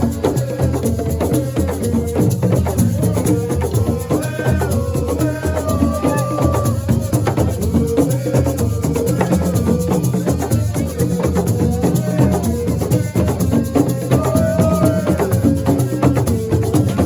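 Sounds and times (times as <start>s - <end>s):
fast hand percussion and shakers: 0.0s - 17.0s.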